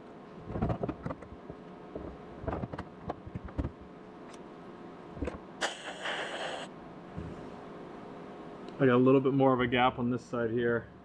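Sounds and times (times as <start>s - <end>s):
welder hiss: 5.6s - 6.7s.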